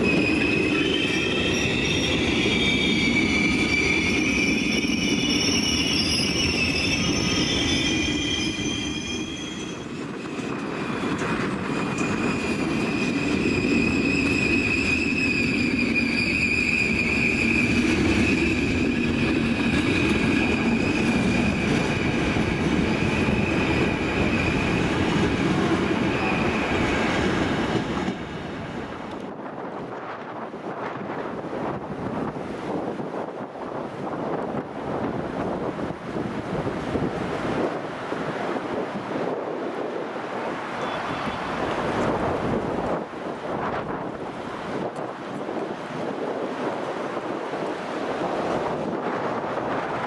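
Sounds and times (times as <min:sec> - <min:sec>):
train wheels squealing: 0:00.0 - 0:28.4, 0:39.3 - 0:42.6
wheels rumbling on rail: 0:00.0 - 0:50.0.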